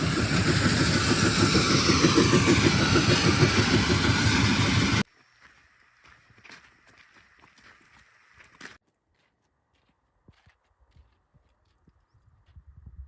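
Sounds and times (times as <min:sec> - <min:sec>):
diesel engine running: 0:00.0 - 0:05.1.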